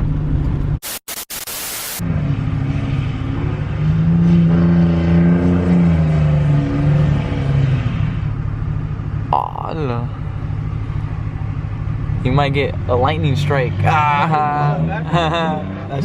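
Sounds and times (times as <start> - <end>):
burst of hiss: 0.8 - 2.0
pickup truck engine revving: 2.0 - 16.0.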